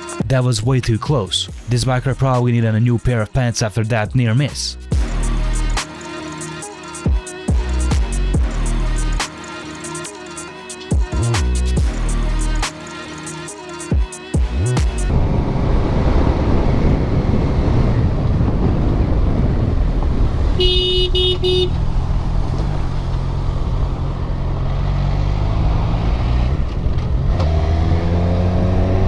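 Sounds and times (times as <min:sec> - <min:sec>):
vehicle engine drone: 0:14.4 - 0:29.0
wind and road rumble: 0:14.8 - 0:29.0
car horn honking: 0:20.6 - 0:21.8.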